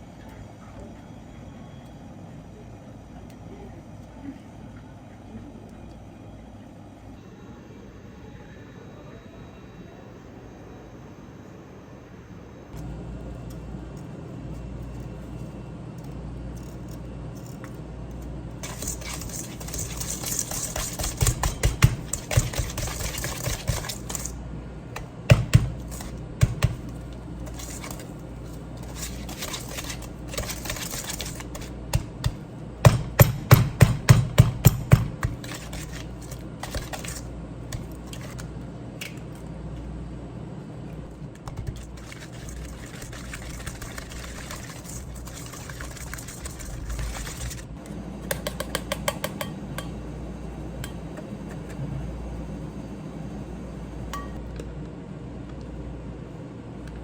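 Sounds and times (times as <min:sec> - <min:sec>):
steady low hum: 0:00.0 - 0:57.0
utensils clinking against dishes: 0:18.6 - 0:24.4, 0:25.8 - 0:32.0.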